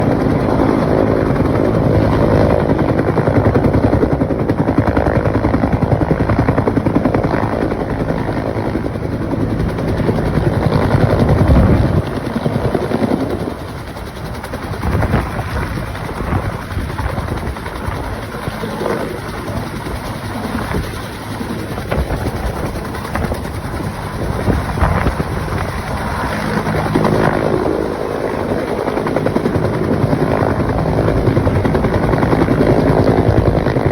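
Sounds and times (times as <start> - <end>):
helicopter rotor beating: 0.0 - 33.9.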